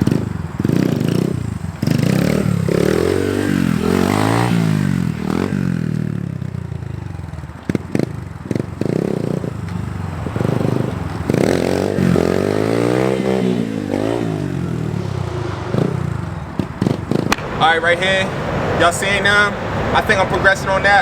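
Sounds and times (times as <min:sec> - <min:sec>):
dirt bike engine revving: 0:00.0 - 0:18.9
sharp clacks: 0:16.6 - 0:17.7.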